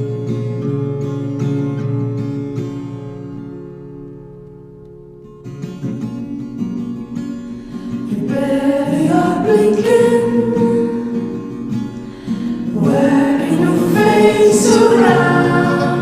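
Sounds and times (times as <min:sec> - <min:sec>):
acoustic guitar playing: 0:00.0 - 0:16.0
person singing: 0:08.1 - 0:11.4, 0:12.7 - 0:16.0.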